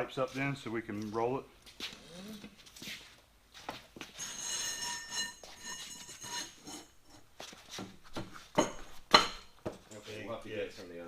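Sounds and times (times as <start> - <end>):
steel pipes clanking: 4.2 - 7.0
sharp metal knocks: 8.6 - 9.6.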